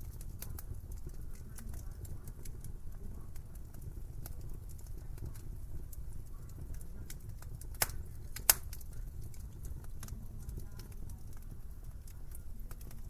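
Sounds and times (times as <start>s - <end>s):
sharp pops of fire: 0.0s - 11.6s
wood fire crackling: 0.0s - 13.0s.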